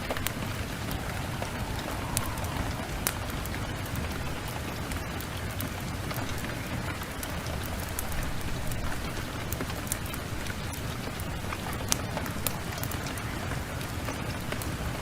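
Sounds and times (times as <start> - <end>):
steady rain: 0.0 - 15.0
wood fire crackling: 0.0 - 15.0.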